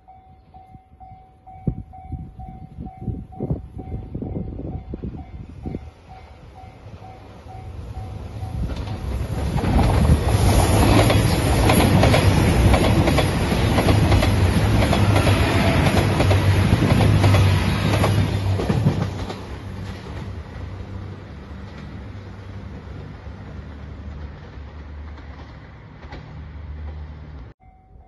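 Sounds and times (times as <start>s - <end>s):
diesel train engines: 0.0s - 28.0s
wheels clattering over rail joints: 8.6s - 22.1s.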